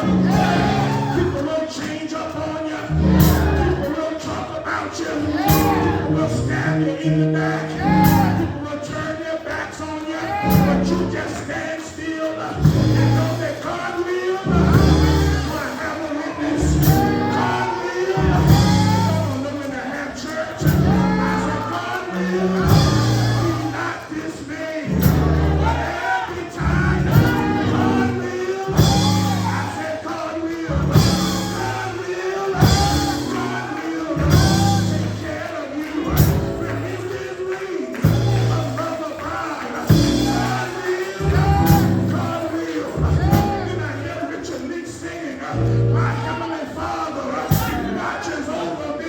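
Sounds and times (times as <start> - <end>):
gospel church band music: 0.0 - 49.0
voices singing: 0.0 - 49.0
pulsing bass line: 24.9 - 25.8.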